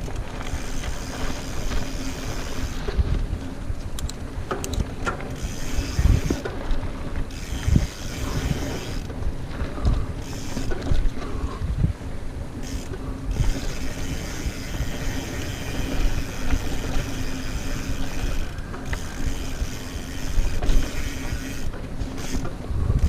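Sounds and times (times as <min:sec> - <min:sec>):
bike rolling over dirt: 0:00.0 - 0:23.0
wind on microphone: 0:00.0 - 0:23.0
rear hub ratcheting: 0:04.0 - 0:09.2, 0:09.9 - 0:11.2, 0:12.6 - 0:22.6.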